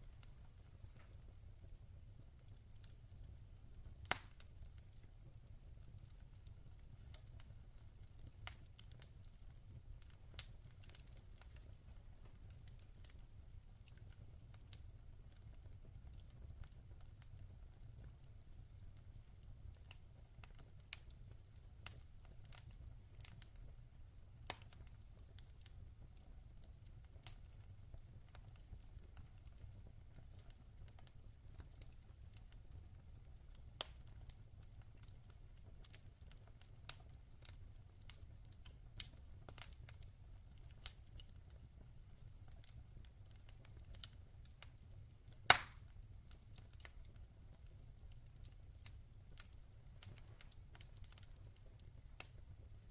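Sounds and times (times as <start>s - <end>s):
log fire crackling: 0.0s - 52.9s.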